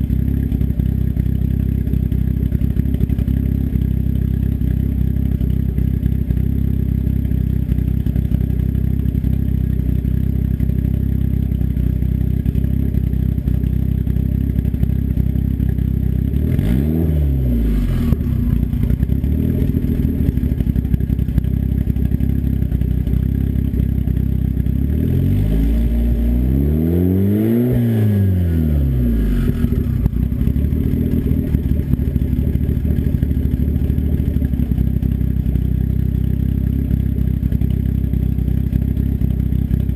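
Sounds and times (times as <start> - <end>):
turbocharged engine idling and revving: 0.0 - 39.9.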